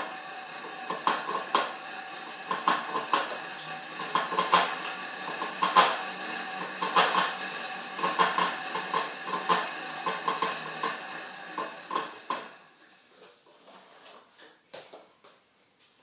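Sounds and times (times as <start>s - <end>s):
bike clicking and knocking: 0.6s - 1.8s, 2.5s - 3.4s, 4.0s - 7.4s, 8.0s - 11.0s.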